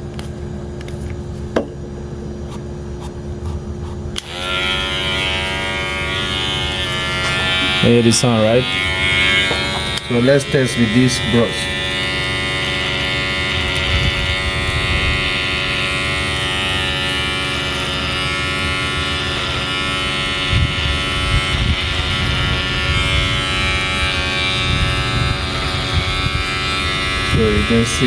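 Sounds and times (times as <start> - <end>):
electric hair clipper buzzing: 4.1 - 28.0
brief bumps: 9.4 - 10.1.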